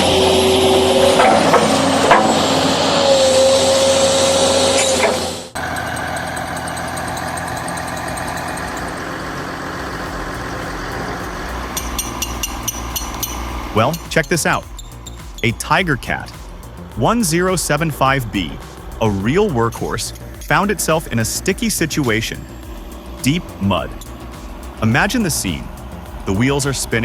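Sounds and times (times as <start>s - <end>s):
heavy machine engine running: 0.0s - 27.0s
heavy machinery whining: 0.0s - 27.0s
machinery knocks: 1.0s - 2.9s.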